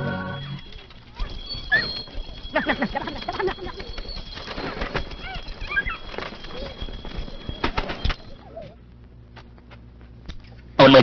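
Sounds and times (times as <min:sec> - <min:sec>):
thin high tone: 0:00.0 - 0:08.6
birds chirping: 0:00.0 - 0:08.9
wings flapping: 0:00.6 - 0:08.8.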